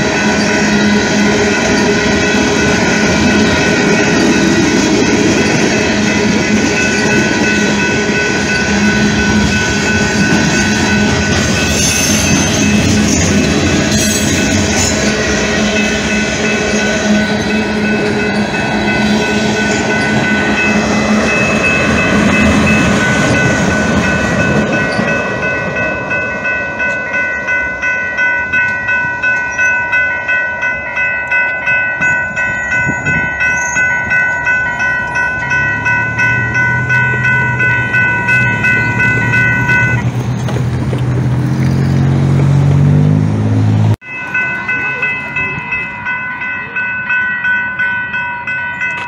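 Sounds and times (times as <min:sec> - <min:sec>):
freight train wheels clattering: 0:00.0 - 0:29.9, 0:31.0 - 0:42.5
crossing warning bell ringing: 0:00.0 - 0:49.0
vehicle engine revving: 0:41.1 - 0:44.0.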